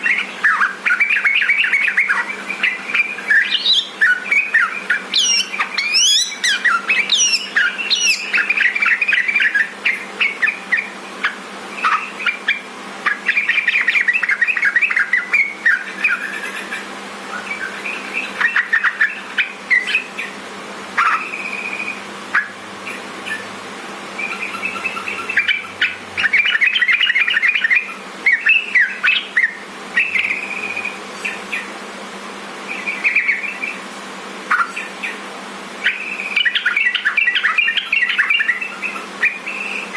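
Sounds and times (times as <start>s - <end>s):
faint hum: 0.0s - 39.9s
bulbul bubbly chirping: 5.1s - 8.4s.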